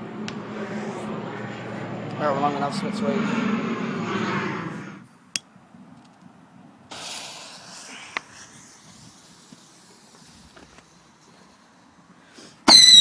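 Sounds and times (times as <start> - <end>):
firework pops: 6.9 - 11.4
firework spraying hiss: 6.9 - 13.0.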